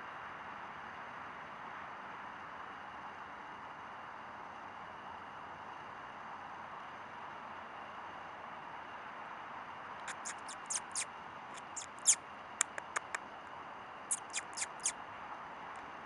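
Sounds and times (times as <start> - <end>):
small animal chirping: 10.0 - 13.2, 14.1 - 15.0.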